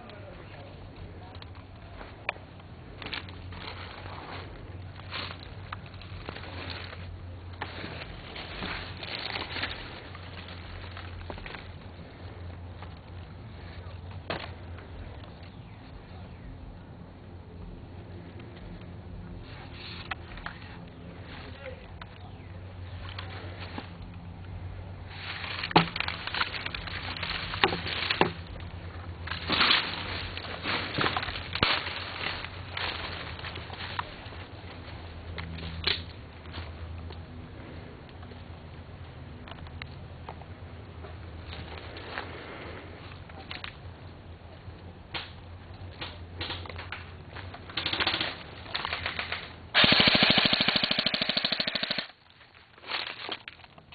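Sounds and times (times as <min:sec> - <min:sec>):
rustling movement: 0:00.0 - 0:16.8, 0:17.7 - 0:39.4, 0:40.5 - 0:44.8, 0:45.4 - 0:53.9
airsoft gun firing full auto: 0:49.2 - 0:52.2.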